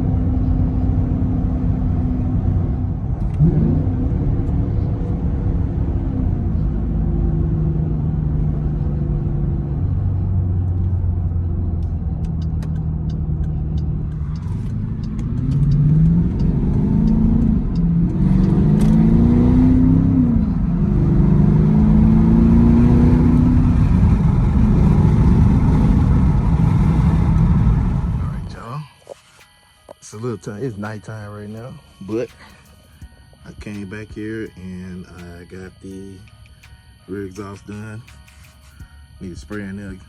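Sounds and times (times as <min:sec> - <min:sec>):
car engine accelerating: 0:00.0 - 0:28.7.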